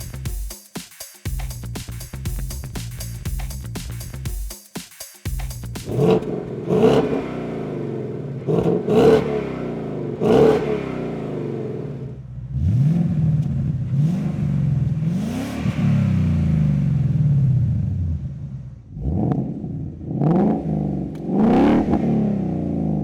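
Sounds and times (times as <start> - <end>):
car engine revving: 5.5 - 23.0.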